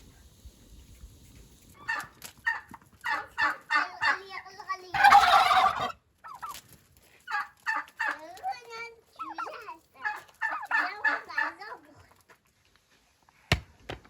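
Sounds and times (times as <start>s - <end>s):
turkey gobbling: 1.8s - 4.3s, 4.9s - 6.6s, 7.2s - 8.4s, 9.2s - 11.8s.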